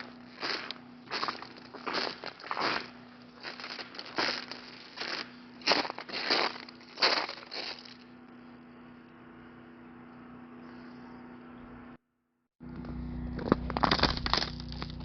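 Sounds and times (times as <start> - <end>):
footsteps crunching on ice: 0.0 - 8.1, 13.3 - 15.0.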